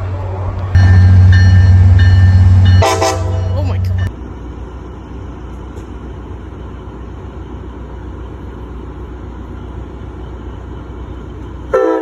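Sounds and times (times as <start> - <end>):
vehicle rumbling: 0.0 - 12.0.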